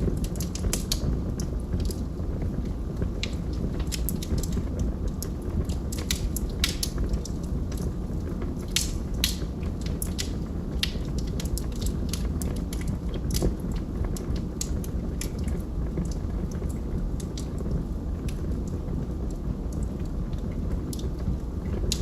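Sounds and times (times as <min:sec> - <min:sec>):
log fire crackling: 0:00.0 - 0:22.0
low rumble of burning wood: 0:00.0 - 0:22.0.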